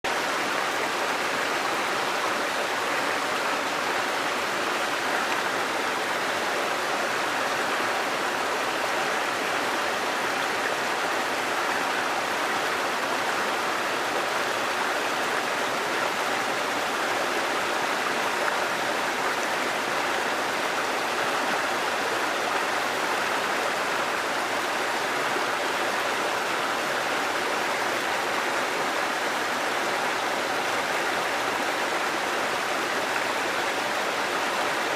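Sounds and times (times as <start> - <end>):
stream water rushing: 0.1 - 34.9.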